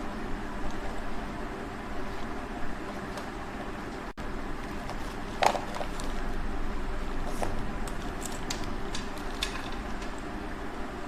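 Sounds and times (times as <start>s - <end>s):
steady low background noise: 0.0s - 11.0s
small objects clicking and tapping: 7.4s - 10.3s.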